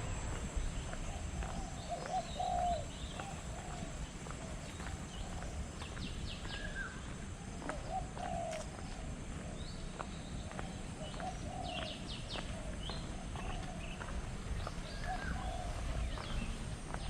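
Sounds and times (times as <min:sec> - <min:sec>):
low steady rumble: 0:00.0 - 0:02.3
lower bird calls: 0:00.0 - 0:17.0.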